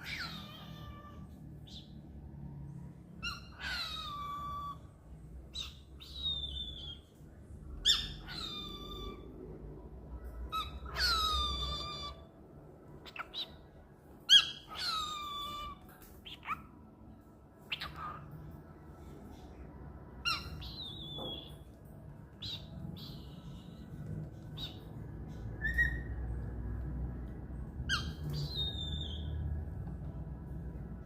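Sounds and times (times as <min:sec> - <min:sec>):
cockatiel calling: 0:00.0 - 0:01.9, 0:03.2 - 0:04.9, 0:05.5 - 0:07.1, 0:07.8 - 0:09.3, 0:10.5 - 0:12.3, 0:13.0 - 0:13.6, 0:14.3 - 0:16.7, 0:17.7 - 0:18.3, 0:20.2 - 0:21.7, 0:22.4 - 0:26.3, 0:27.9 - 0:29.4.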